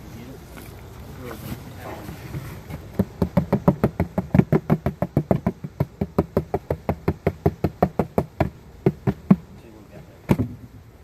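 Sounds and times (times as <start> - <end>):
rapid knocking on a box: 2.7 - 9.5.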